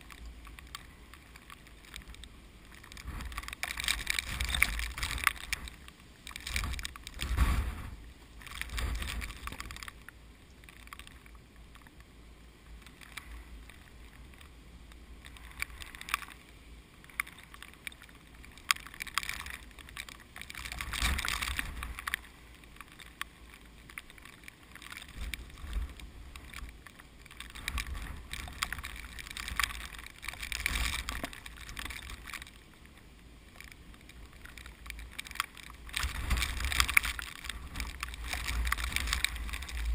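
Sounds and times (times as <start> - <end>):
wind rushing through plants: 0.0 - 39.9
wind buffeting microphone: 2.1 - 9.8.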